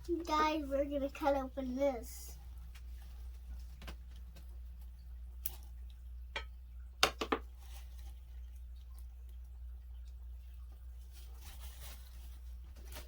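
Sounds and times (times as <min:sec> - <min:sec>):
low steady hum: 0:00.0 - 0:13.0
small objects clicking and tapping: 0:06.3 - 0:07.5.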